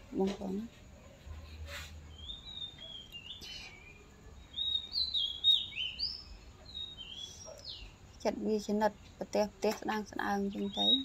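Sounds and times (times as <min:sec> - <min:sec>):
songbird chirping and whistling: 0:01.7 - 0:08.0, 0:10.5 - 0:11.0.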